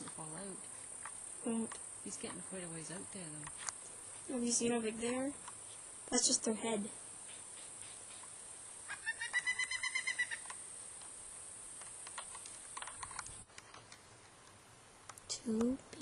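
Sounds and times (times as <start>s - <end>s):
woodpecker nestling begging calls: 7.2s - 10.6s.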